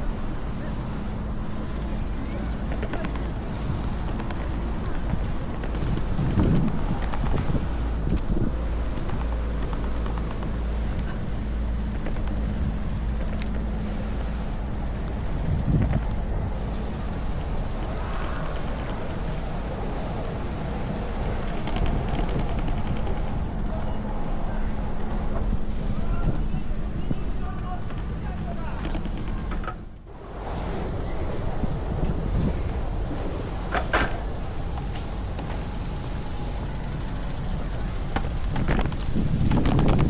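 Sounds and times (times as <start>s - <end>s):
wind buffeting microphone: 0.0s - 28.2s, 30.1s - 40.0s
outdoor city noise: 0.0s - 40.0s.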